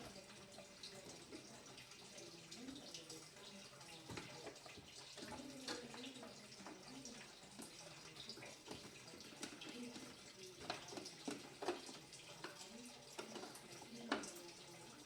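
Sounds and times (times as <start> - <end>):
faint water running and splashing: 0.0 - 15.0.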